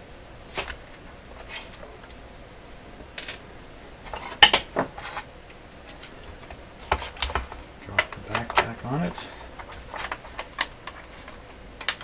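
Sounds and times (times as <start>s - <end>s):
small hard parts clicking: 5.9s - 12.0s.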